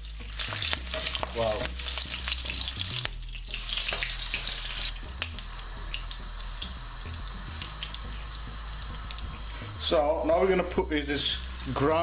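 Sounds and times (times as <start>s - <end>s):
oil crackles and pops: 0.0s - 9.6s
spices sizzling in hot oil: 0.0s - 12.0s.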